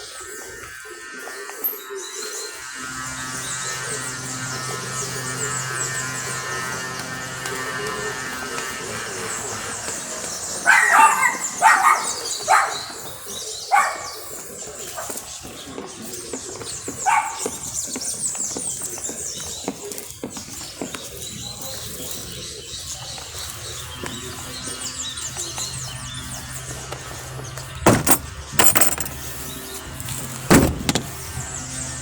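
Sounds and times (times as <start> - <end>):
dog barking: 10.6 - 14.4, 17.0 - 17.6.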